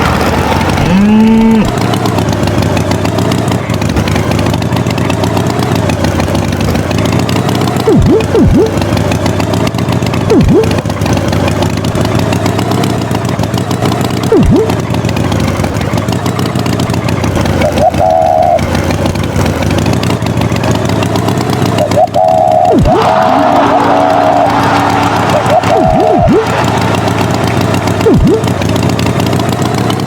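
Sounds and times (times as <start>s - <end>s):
engine running loudly: 0.0s - 30.0s
higher wavering tone: 7.9s - 8.8s, 10.3s - 10.8s, 14.3s - 14.8s, 21.8s - 26.9s, 28.0s - 28.5s.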